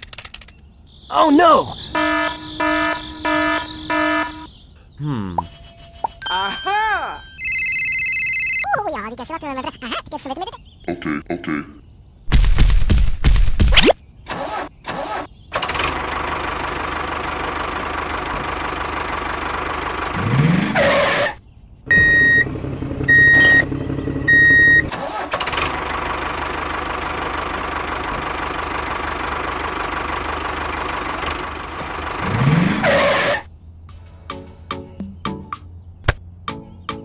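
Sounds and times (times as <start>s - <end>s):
electronic beeps: 1.7s - 8.7s, 23.1s - 23.7s
small engine running: 15.6s - 21.3s, 21.9s - 33.4s.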